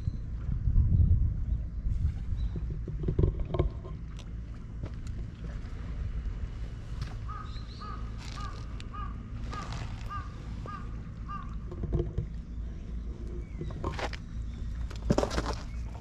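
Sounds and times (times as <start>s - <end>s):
wind on microphone: 0.0s - 4.0s.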